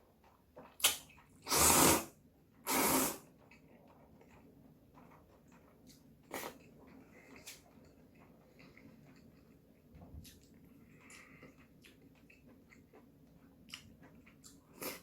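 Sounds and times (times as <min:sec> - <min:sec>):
noodles slurped: 0:00.8 - 0:03.2.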